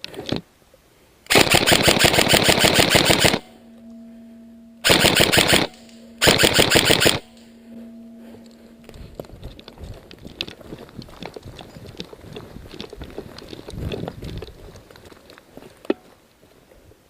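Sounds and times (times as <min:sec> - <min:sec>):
airsoft gun firing bursts: 0:01.3 - 0:03.5, 0:04.8 - 0:07.3.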